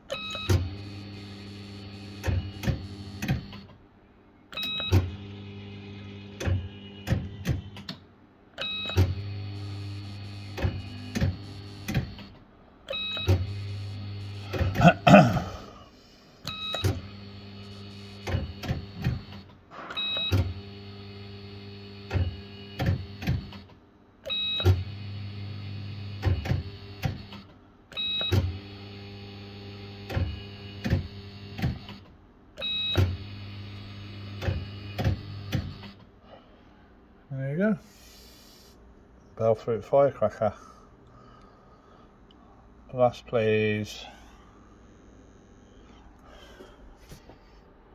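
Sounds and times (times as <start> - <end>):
fruit machine hum and tones: 0.1 - 3.8, 4.5 - 8.0, 8.6 - 15.9, 16.5 - 36.0
fruit machine reels clunking: 14.4 - 15.4.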